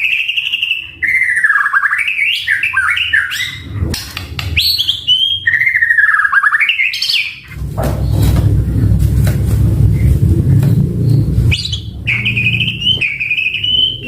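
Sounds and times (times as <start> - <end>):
bird singing varied song: 0.0 - 8.5, 9.9 - 14.0.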